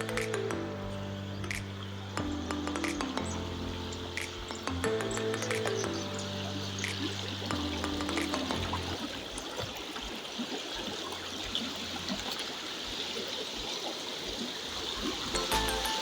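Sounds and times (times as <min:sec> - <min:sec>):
running water: 0:00.0 - 0:16.0.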